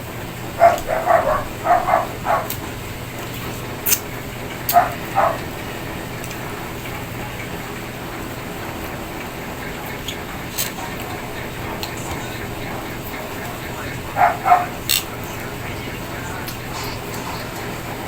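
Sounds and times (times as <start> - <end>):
dog barking: 0.3 - 5.8, 10.8 - 18.0.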